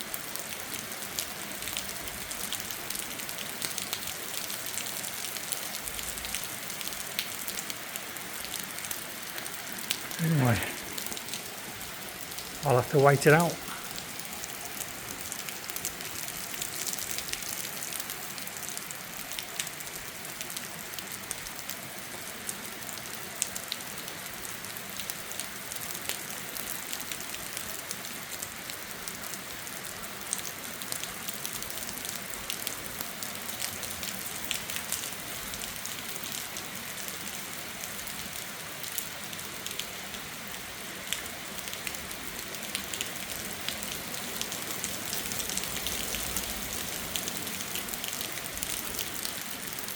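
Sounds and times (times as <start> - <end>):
heavy rain hiss: 0.0 - 49.9
raindrops hitting hard surfaces: 0.0 - 49.9.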